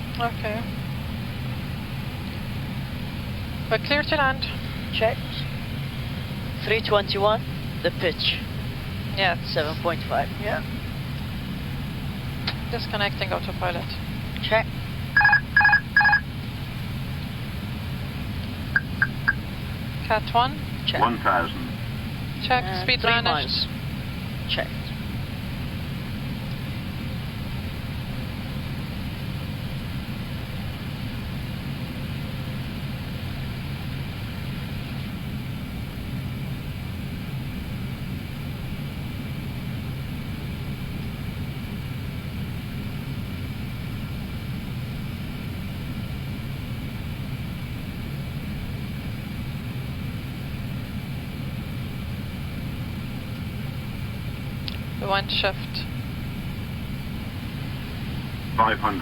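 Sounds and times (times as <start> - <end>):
airflow rush and engine hum: 0.0 - 59.0
faint steady tones: 12.7 - 16.3, 18.8 - 23.8.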